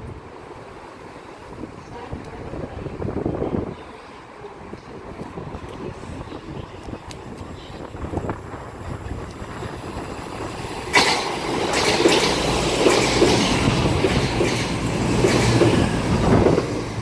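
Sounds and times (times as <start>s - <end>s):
train passing rumble: 0.0s - 17.0s
wheels clattering over rail joints: 8.2s - 17.0s.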